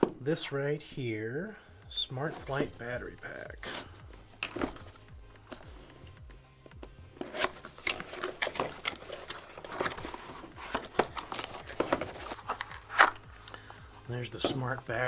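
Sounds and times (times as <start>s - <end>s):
packaging rustling and crinkling: 3.6s - 13.6s.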